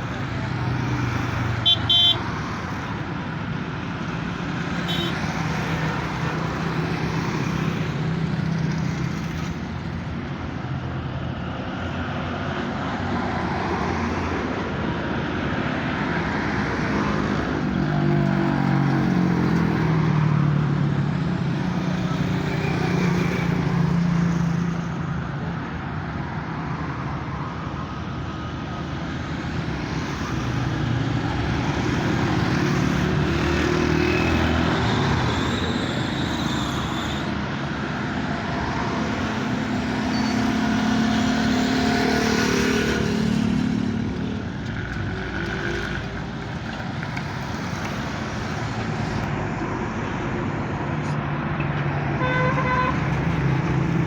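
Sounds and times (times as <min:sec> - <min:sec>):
road traffic noise: 0:00.0 - 0:54.0.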